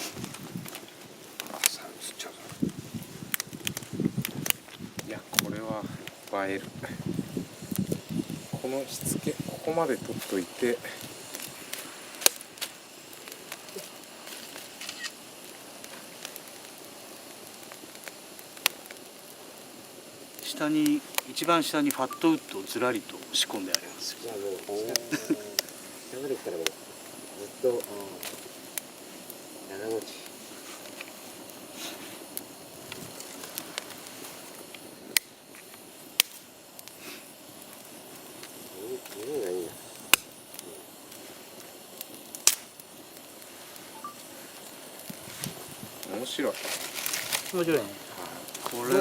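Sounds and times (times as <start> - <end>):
steady hiss: 0.0 - 49.0
wood fire crackling: 0.0 - 49.0
loud sharp pops: 11.0 - 15.2, 31.8 - 39.4, 40.1 - 41.2, 42.0 - 42.9.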